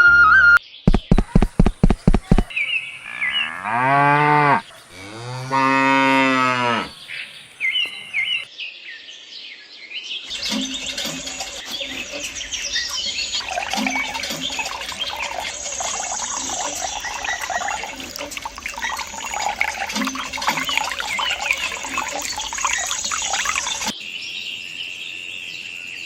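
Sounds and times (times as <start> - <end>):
quick clicks: 0.9 - 2.5
chorus of chirping birds: 2.3 - 26.0
cow mooing: 3.0 - 7.0
high bird chirps: 10.3 - 24.0.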